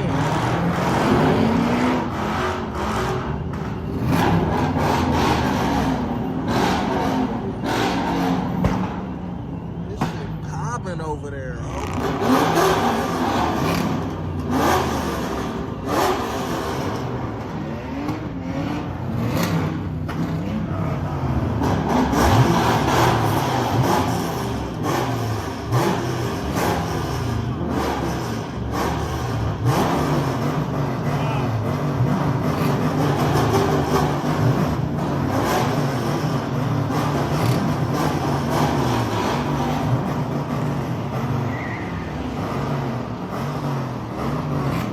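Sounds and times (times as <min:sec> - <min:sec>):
car engines revving: 0:00.0 - 0:44.9.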